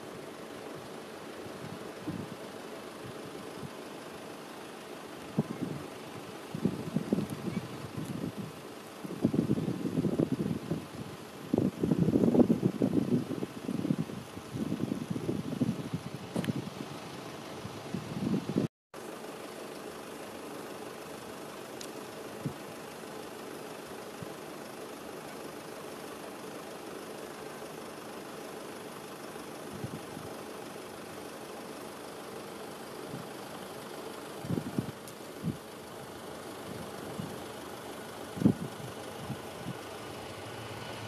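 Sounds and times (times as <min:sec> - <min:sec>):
engine hum: 0:00.0 - 0:41.0
wind buffeting microphone: 0:01.5 - 0:02.4, 0:05.3 - 0:18.7, 0:34.4 - 0:35.6, 0:38.3 - 0:39.9.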